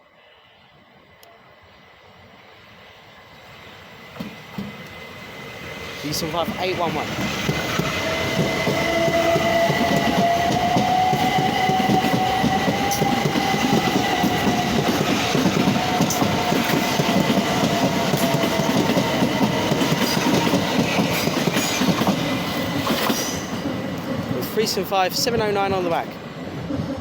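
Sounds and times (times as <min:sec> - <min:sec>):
train wheels rumbling on rail: 0:03.4 - 0:27.0
train motor whine: 0:06.8 - 0:24.1.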